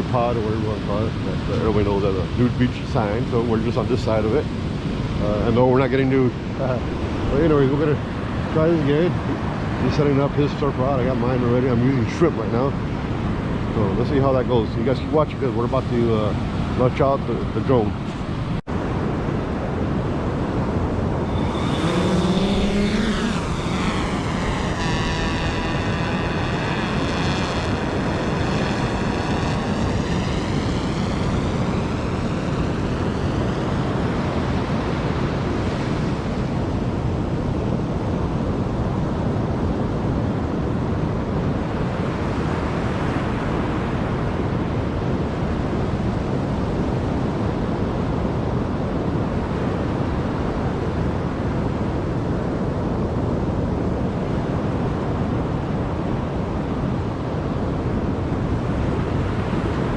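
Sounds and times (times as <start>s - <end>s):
wind buffeting microphone: 0.0s - 59.9s
surf: 15.4s - 36.7s
drone propellers whining: 20.2s - 36.1s.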